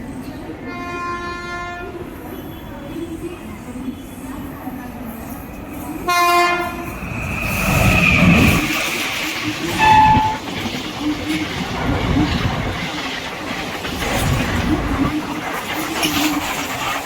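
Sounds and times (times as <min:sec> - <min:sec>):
train wheels clattering over rails: 0:05.6 - 0:17.0
locomotive horn blast: 0:06.1 - 0:06.9, 0:09.7 - 0:10.5.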